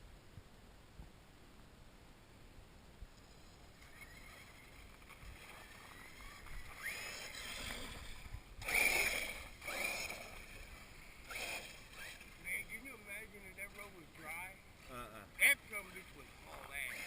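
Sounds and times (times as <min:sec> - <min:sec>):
model truck motor revving: 0:03.2 - 0:13.0, 0:16.3 - 0:17.0.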